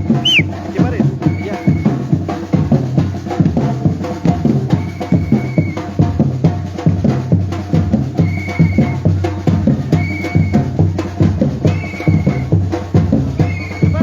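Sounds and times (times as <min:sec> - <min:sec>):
whistle held note: 0:00.0 - 0:00.5, 0:04.8 - 0:05.8, 0:08.2 - 0:09.0, 0:10.0 - 0:10.6, 0:11.7 - 0:12.5, 0:13.4 - 0:14.0
deep bass drums: 0:00.0 - 0:14.0
samba drum group playing: 0:00.0 - 0:14.0.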